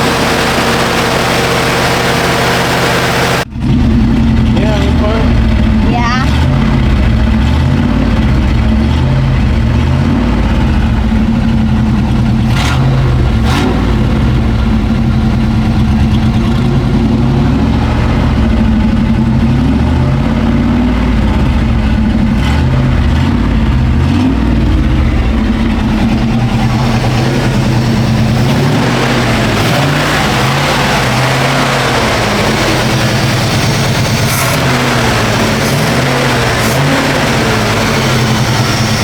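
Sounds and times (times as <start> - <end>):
car engine running steadily: 0.0 - 39.0.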